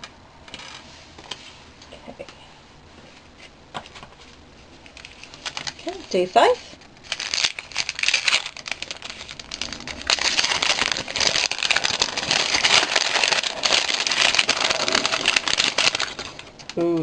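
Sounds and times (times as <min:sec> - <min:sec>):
wrapping crinkling and tearing: 0:04.8 - 0:17.0.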